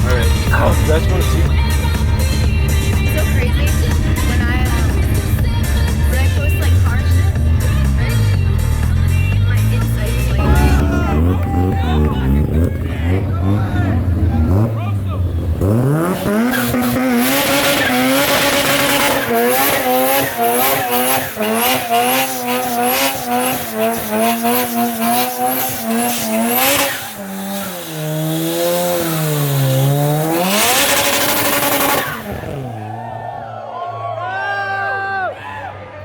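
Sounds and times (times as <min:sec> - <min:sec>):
tyres squealing: 0:00.0 - 0:32.7
car engine revving: 0:00.0 - 0:33.5.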